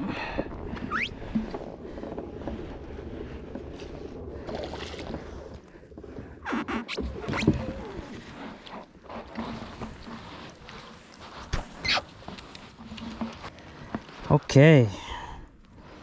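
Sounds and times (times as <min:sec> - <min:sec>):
water around a kayak: 0:00.0 - 0:16.0.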